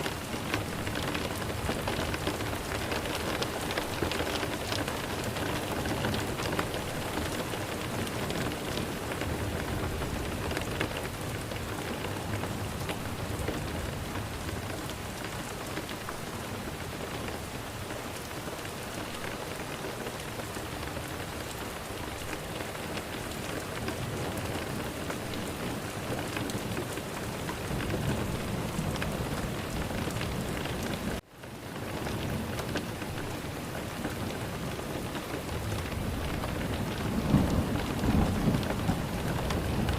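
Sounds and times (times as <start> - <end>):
heavy rain: 0.0 - 39.9
thunder rumbling: 35.4 - 39.9.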